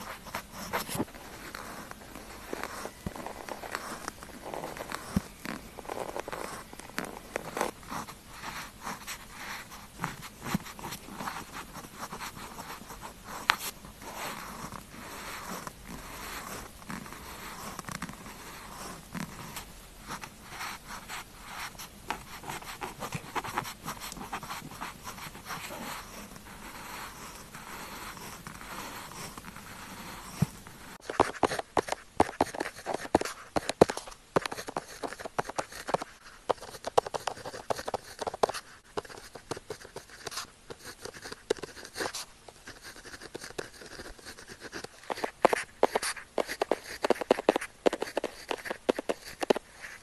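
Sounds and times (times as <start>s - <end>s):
pen nib scratching on paper: 0.0s - 50.0s.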